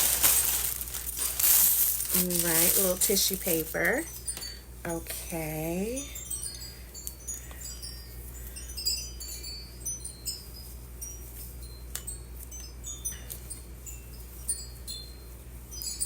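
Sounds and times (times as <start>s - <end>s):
tissue paper crinkling: 0.0s - 4.1s.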